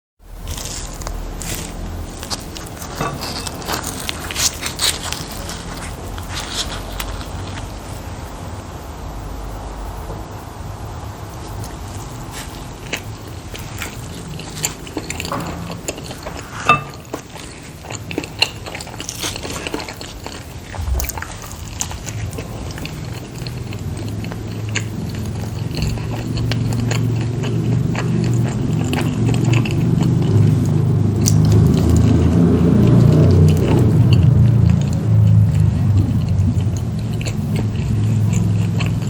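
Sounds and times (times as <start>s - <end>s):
biting and chewing dumplings: 0.3s - 8.1s, 11.2s - 39.0s
low rumble: 20.7s - 23.1s.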